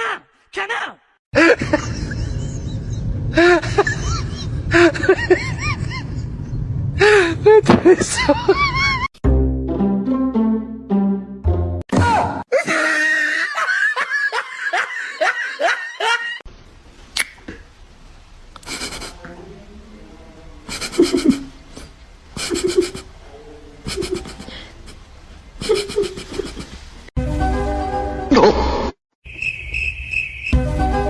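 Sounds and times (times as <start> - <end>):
person laughing hard: 1.4 - 6.3, 7.0 - 9.1, 12.5 - 16.4, 20.7 - 21.5, 22.4 - 23.1, 23.9 - 25.0, 25.6 - 26.8.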